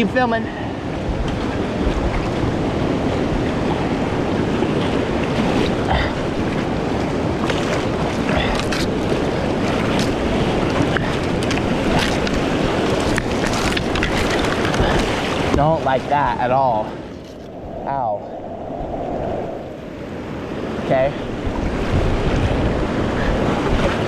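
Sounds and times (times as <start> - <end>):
creek whitewater rushing: 0.0 - 18.4
wind noise on microphone: 0.0 - 24.0.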